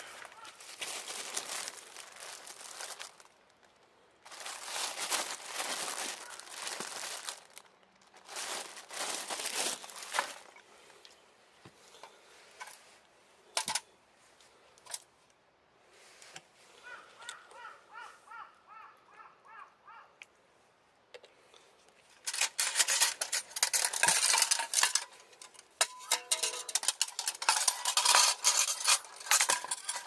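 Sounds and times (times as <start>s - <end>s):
dry material crinkling and rustling: 0.0s - 13.0s, 22.0s - 30.0s.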